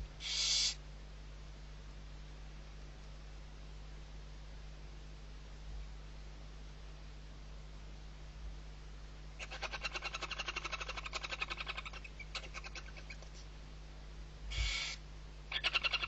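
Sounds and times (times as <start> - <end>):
owl chick chittering trill: 0.2 - 0.8, 9.4 - 13.3, 14.5 - 16.0
owl chick rasping: 0.2 - 0.8, 9.4 - 13.4, 14.5 - 16.0.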